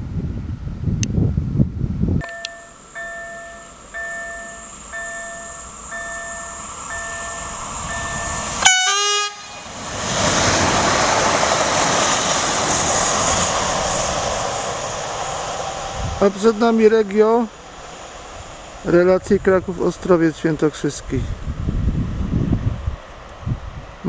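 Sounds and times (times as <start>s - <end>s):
level crossing signal beeping: 2.2s - 9.6s
train passing: 2.2s - 24.0s
train horn blast: 8.6s - 9.7s.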